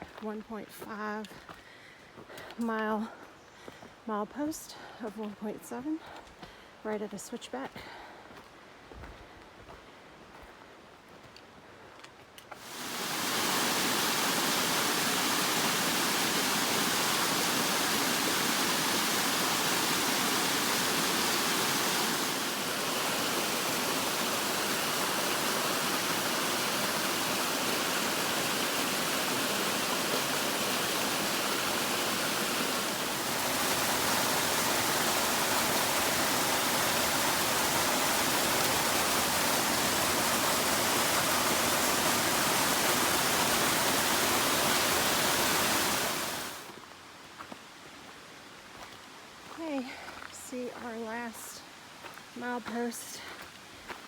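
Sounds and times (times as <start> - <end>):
waterfall rushing: 12.6 - 46.8.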